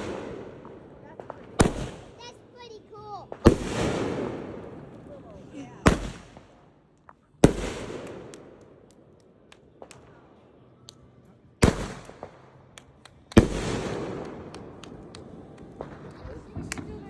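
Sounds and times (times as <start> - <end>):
fireworks bangs: 0.0 - 6.7, 7.4 - 10.2, 11.6 - 17.0
small sharp cracks: 8.0 - 10.1.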